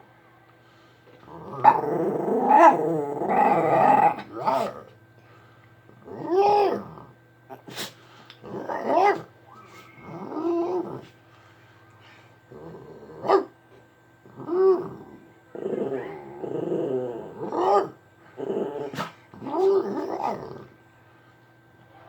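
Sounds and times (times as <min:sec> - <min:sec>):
dog growly vocal calls: 0:01.3 - 0:05.0, 0:08.4 - 0:11.1, 0:12.5 - 0:13.5, 0:14.3 - 0:20.7.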